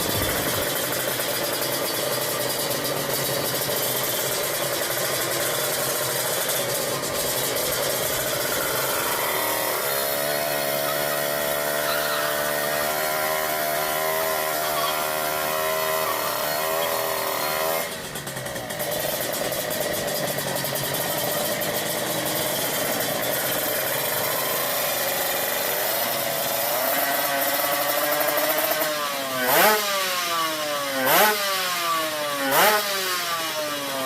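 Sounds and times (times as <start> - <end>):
steady wavering whine: 0.0 - 1.4
motorcycle engine revving high: 0.0 - 34.0.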